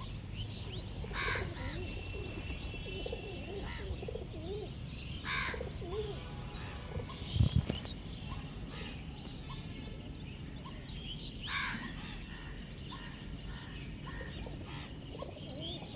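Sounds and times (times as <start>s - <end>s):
birds chirping and whistling: 0.0s - 8.4s
harsh rasping bird calls: 0.0s - 8.9s.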